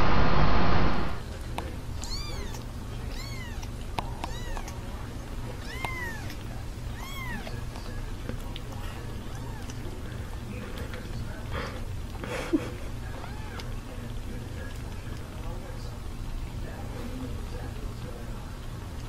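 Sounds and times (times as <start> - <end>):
loud rushing noise: 0.0 - 1.2
kitten mewing: 2.0 - 4.9, 5.6 - 7.6, 8.8 - 9.8, 13.1 - 13.7.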